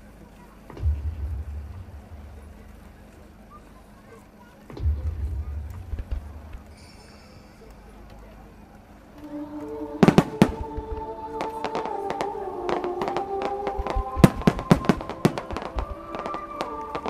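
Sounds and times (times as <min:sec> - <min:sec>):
held music: 0:00.0 - 0:17.0
fireworks bangs and crackles: 0:10.0 - 0:17.0.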